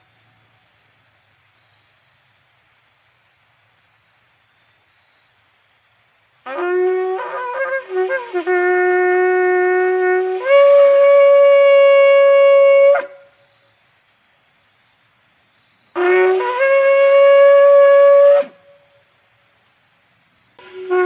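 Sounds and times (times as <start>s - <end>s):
shofar blowing: 6.4s - 13.5s, 15.9s - 19.1s, 20.6s - 21.0s.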